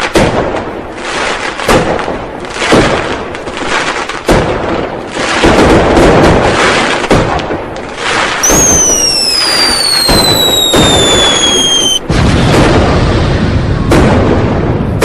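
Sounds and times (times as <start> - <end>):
firecrackers banging and crackling: 0.0 - 15.0
falling firework whistle: 8.4 - 12.7.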